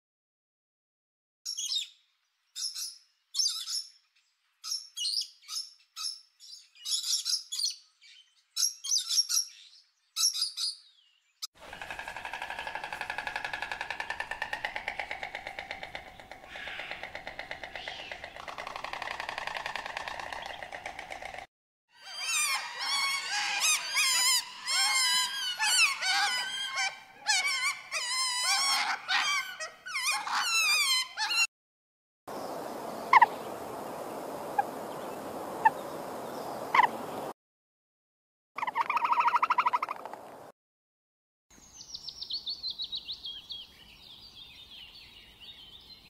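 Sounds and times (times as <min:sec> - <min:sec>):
bird warbling song: 0:01.5 - 0:21.2, 0:32.3 - 0:37.3, 0:41.6 - 0:46.0.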